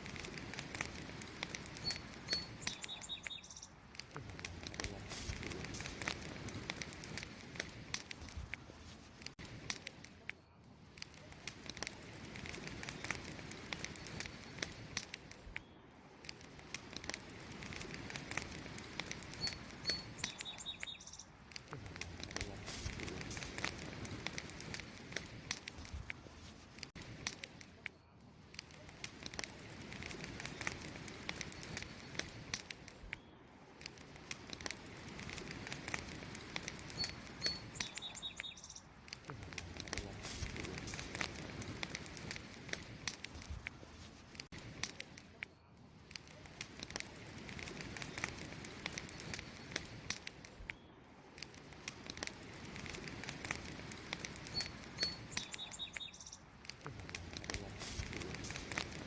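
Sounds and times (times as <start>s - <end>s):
campfire crackling: 0.0s - 59.0s
bird chirping: 1.8s - 3.8s, 19.3s - 21.4s, 36.9s - 38.9s, 54.5s - 56.5s.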